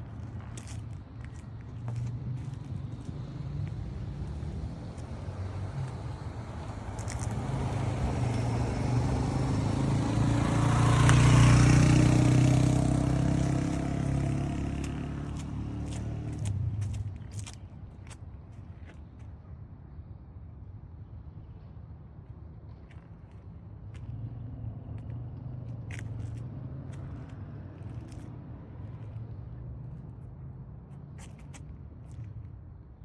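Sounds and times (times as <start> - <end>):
vehicle engine passing by: 1.9 - 17.6, 23.9 - 32.3.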